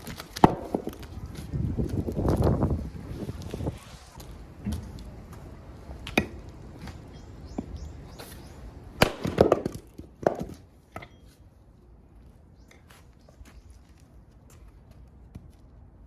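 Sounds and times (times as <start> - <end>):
axe splitting firewood: 0.0 - 1.2, 9.0 - 11.2.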